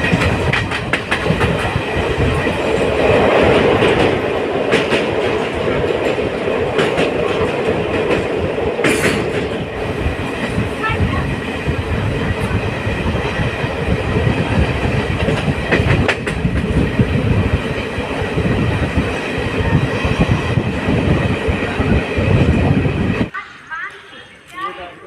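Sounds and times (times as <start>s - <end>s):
train rumbling on rails: 0.0s - 23.6s.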